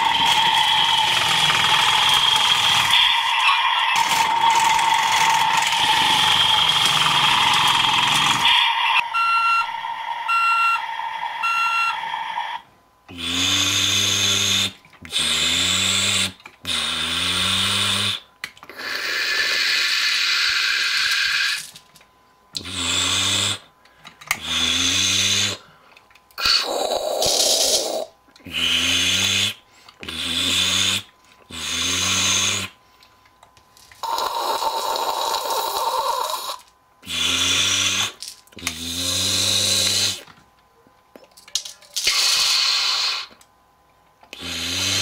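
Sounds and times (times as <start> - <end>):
wavering electronic bursts: 0.0 - 12.6
buzzy toy engine sound: 0.0 - 21.8, 24.3 - 25.6, 34.0 - 40.3
short beeps: 9.0 - 12.0.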